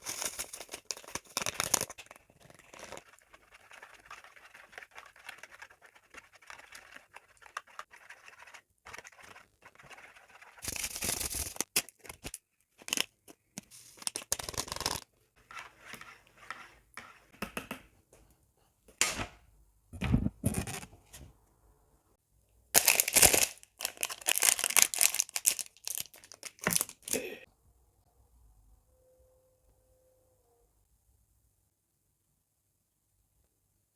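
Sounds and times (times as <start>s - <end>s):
packaging tearing and crinkling: 0.0s - 3.0s, 10.6s - 13.1s, 13.9s - 15.0s, 22.8s - 27.2s.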